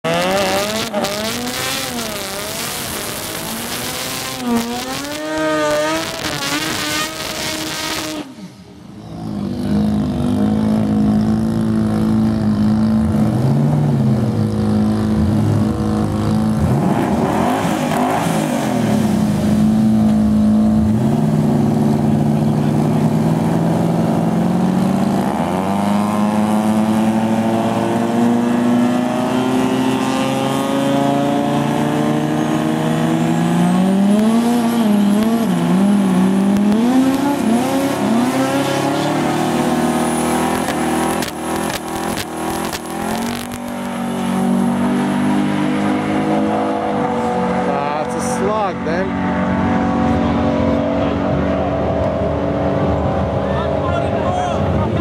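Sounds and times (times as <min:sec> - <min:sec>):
drag car engine revving: 0:00.0 - 0:55.0
other engines passing: 0:00.1 - 0:55.0.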